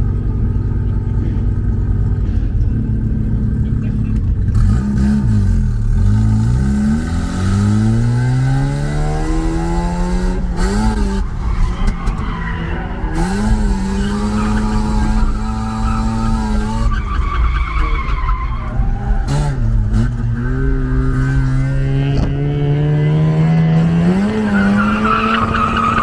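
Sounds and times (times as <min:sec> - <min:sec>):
car engine revving: 0:00.0 - 0:26.0
tyre squeal: 0:10.6 - 0:22.0, 0:24.3 - 0:26.0.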